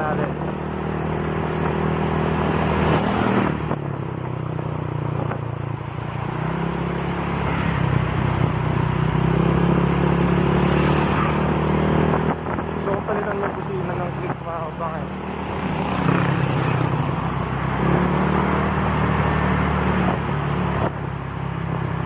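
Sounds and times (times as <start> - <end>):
wind rushing over microphone: 0.0 - 6.4, 8.2 - 21.0
scooter engine running: 0.0 - 14.1, 14.8 - 17.6.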